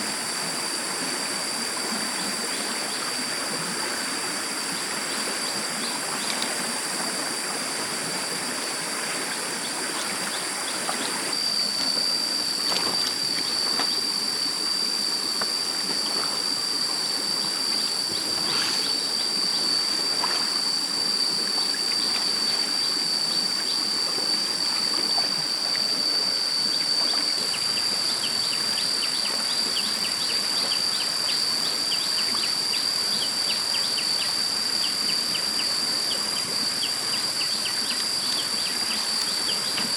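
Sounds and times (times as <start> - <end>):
high-pitched whine: 0.0 - 39.9
stream water running: 0.0 - 39.9.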